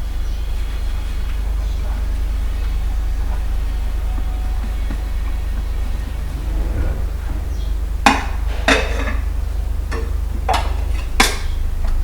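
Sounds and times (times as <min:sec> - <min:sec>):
low hum: 0:05.0 - 0:09.3.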